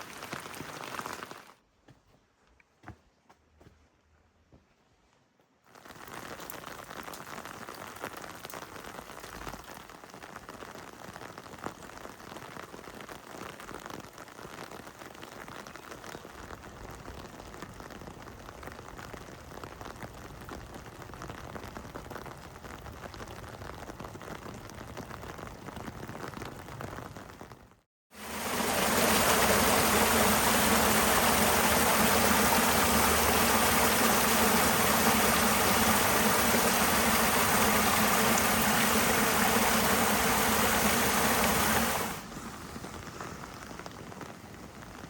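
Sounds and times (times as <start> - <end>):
heavy rain falling: 0.0 - 1.5, 28.2 - 45.0.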